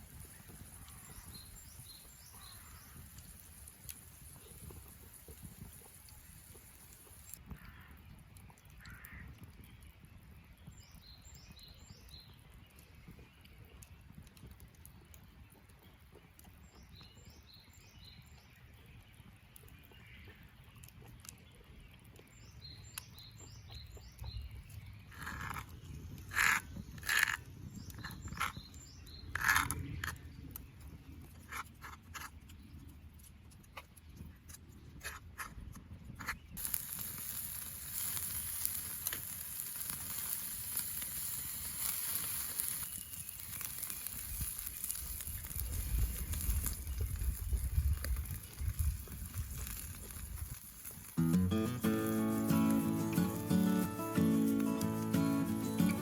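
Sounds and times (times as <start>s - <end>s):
small birds chirping: 0.0s - 56.0s
sharp cracks and clicks: 36.6s - 56.0s.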